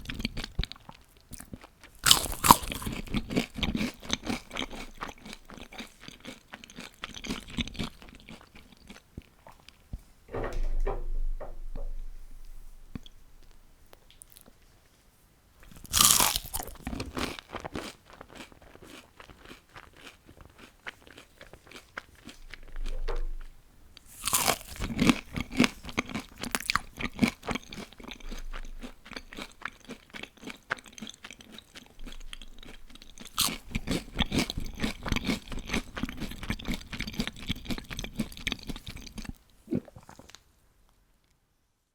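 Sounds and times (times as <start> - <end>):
crackly chewing: 0.0 - 9.8, 15.6 - 40.5
crunching bites: 2.0 - 5.4, 15.7 - 20.1, 24.2 - 27.5, 32.1 - 38.7.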